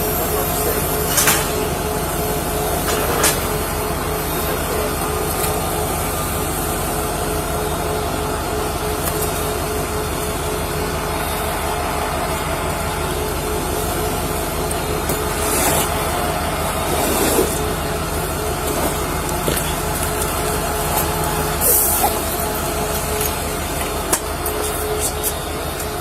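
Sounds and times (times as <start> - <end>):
vehicle engine hum: 0.0 - 26.0.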